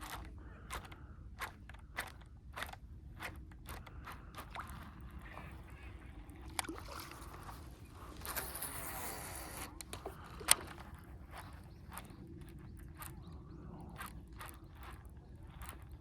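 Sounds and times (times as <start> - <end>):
fishing reel clicks: 0.0 - 16.0
fishing line whirring off spool: 3.6 - 16.0.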